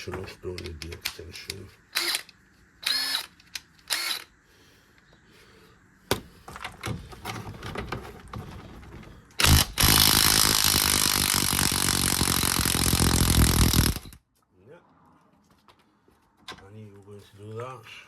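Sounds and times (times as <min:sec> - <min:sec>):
power tool running: 0:02.0 - 0:03.3, 0:03.9 - 0:04.3, 0:09.4 - 0:14.2.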